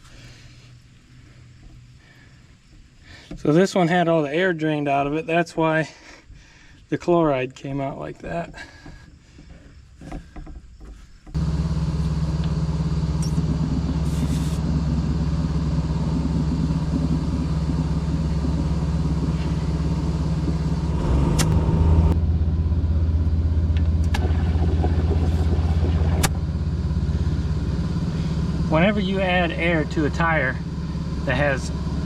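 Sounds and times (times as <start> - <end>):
air compressor running: 11.4 - 32.0
sharp clicks: 16.0 - 21.7.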